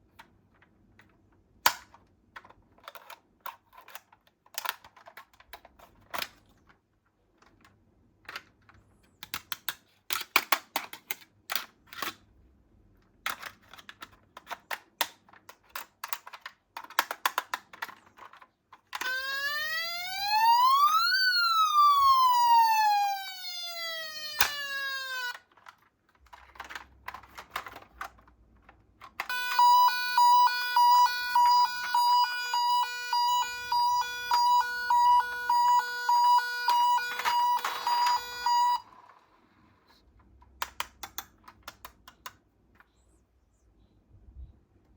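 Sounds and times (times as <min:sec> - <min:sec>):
toy cars clicking and rattling: 0:00.5 - 0:12.3, 0:13.0 - 0:19.4, 0:24.2 - 0:32.8, 0:33.6 - 0:38.8
electronic toy siren sweeping: 0:19.0 - 0:25.4, 0:29.3 - 0:39.0
pulsing electronic toy siren beeps: 0:19.0 - 0:25.4, 0:29.3 - 0:38.8.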